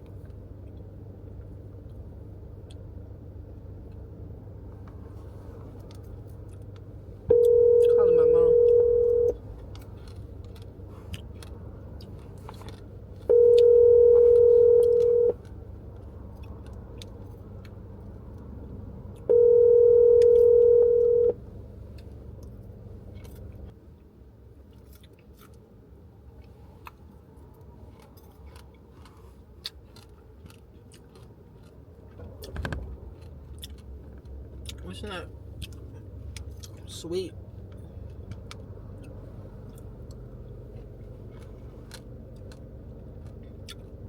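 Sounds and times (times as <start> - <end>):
telephone ringback tone: 7.3 - 9.4, 13.3 - 15.4, 19.3 - 21.4.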